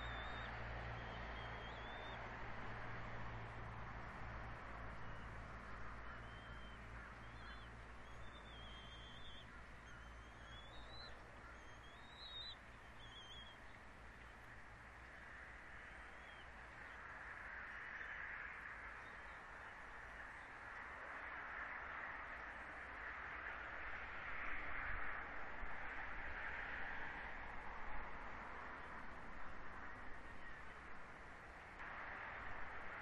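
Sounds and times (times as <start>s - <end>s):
bird high wavering calls: 0.0s - 2.2s, 6.0s - 13.6s
faint outdoor hiss: 0.0s - 33.0s.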